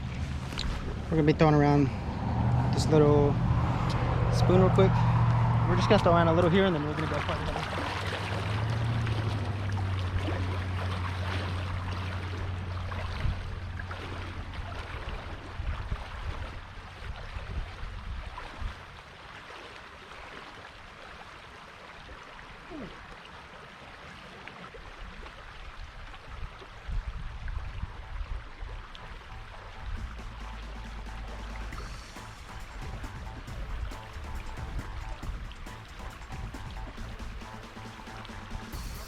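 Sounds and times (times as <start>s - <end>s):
low steady rumble: 0.0s - 17.1s, 27.3s - 39.0s
creek water flowing: 0.0s - 39.0s.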